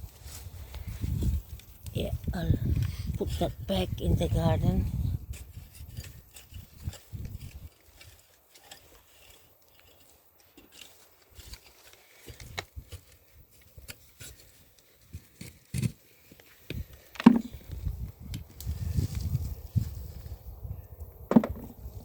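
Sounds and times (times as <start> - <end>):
soft knocks and thuds: 21.3 - 21.7.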